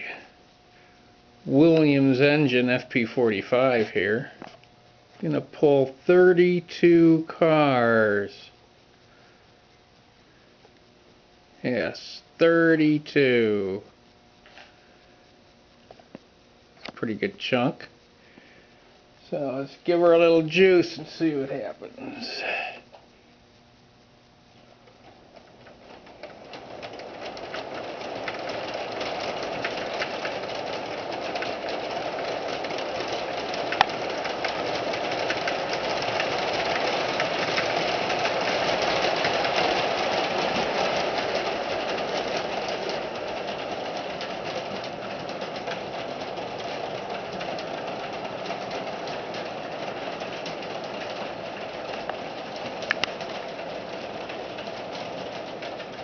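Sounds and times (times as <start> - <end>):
wheels clicking on track: 24.7 - 56.0
model train running on track: 25.0 - 56.0.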